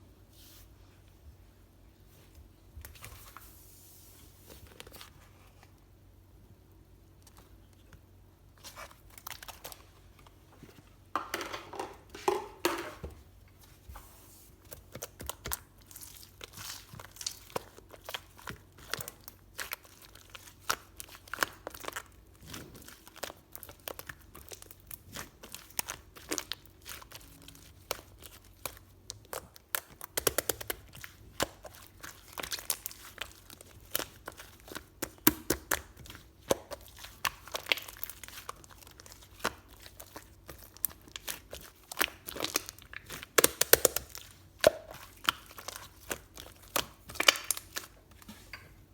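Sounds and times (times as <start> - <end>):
crinkling and tearing: 15.0 - 48.5.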